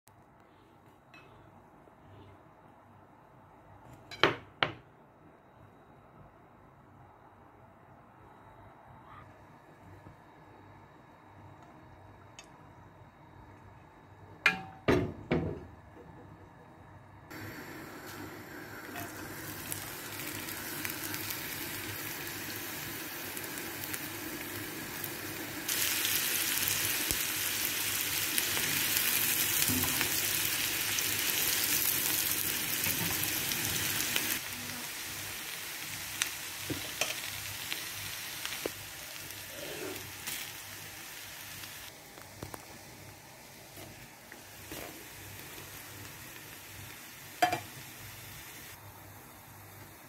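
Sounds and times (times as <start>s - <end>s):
food sizzling in hot oil: 17.3s - 48.8s.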